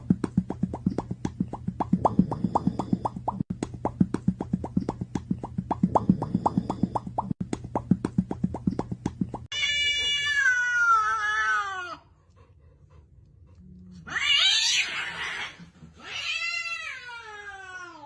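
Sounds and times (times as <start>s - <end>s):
cat meowing: 9.5s - 12.0s.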